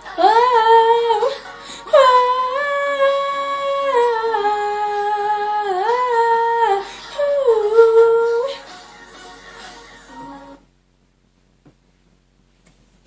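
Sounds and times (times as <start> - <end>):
girl singing wordless run: 0.0 - 8.8.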